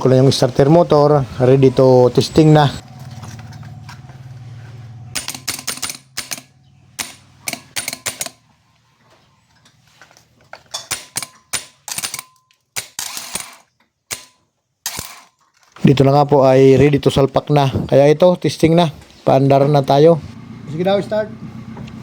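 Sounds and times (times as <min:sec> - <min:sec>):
metallic clicks of tools: 0:05.2 - 0:08.4, 0:10.6 - 0:15.7.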